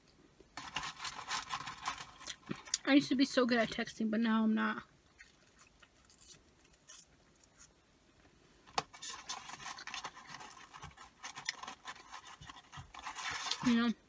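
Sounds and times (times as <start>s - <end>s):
paper wrapper crackling: 0.6s - 2.8s, 8.9s - 13.9s.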